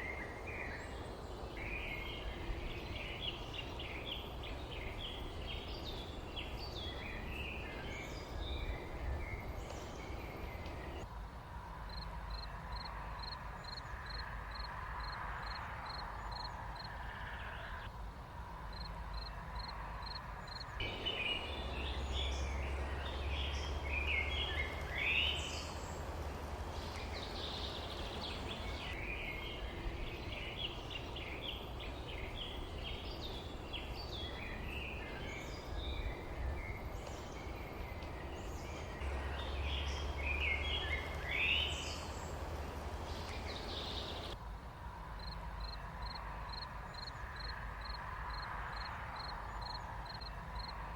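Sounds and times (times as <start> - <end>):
birds twittering: 0.0 - 11.0, 20.4 - 44.4
low outdoor rumble: 0.0 - 13.2, 17.5 - 46.5.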